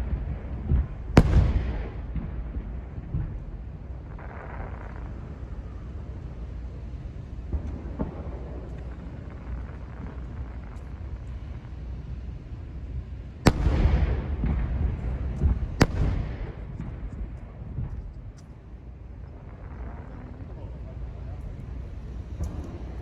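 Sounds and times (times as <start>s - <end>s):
loud firework shell bangs: 0.0s - 3.6s, 13.5s - 18.2s
firework crackle: 0.0s - 23.0s
low rumble of firework bursts: 0.0s - 23.0s.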